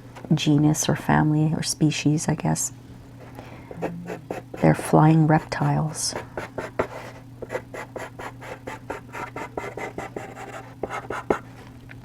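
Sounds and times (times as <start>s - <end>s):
charcoal pencil scratching on paper: 6.5s - 11.4s.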